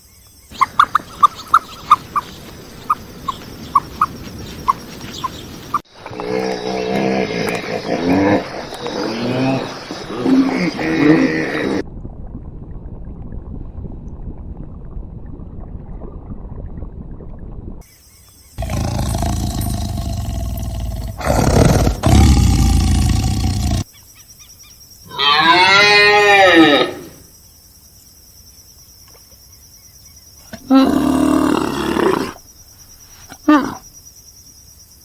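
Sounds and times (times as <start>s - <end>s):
rough animal sound: 5.8s - 11.8s, 18.6s - 23.9s
low rumbling animal noise: 5.9s - 11.8s, 18.6s - 23.9s.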